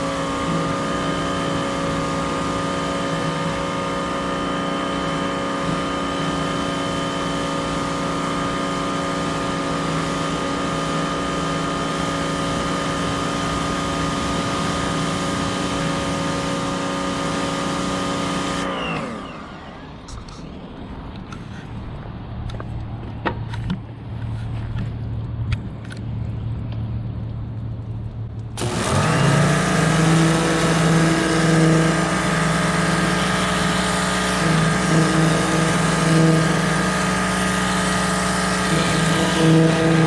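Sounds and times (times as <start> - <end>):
pressure washer motor and pump: 0.0 - 26.8, 27.6 - 40.0
water jet hissing: 28.6 - 40.0.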